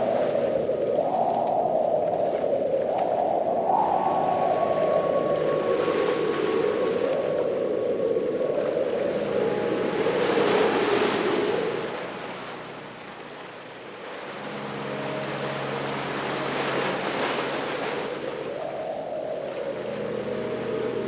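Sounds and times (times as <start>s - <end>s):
ocean waves breaking: 8.8s - 21.0s.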